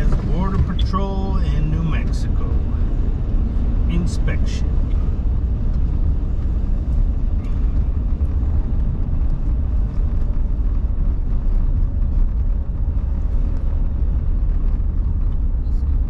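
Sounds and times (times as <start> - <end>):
road noise inside car: 0.0 - 16.0
vehicle engine rumble: 0.0 - 16.0.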